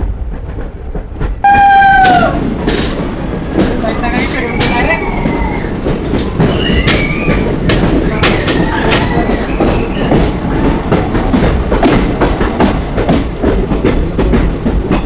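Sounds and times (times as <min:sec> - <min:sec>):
train wheels rumbling on track: 0:00.0 - 0:15.0
wheels clattering over rail joints: 0:00.0 - 0:15.0
wheel squeals: 0:03.8 - 0:10.6.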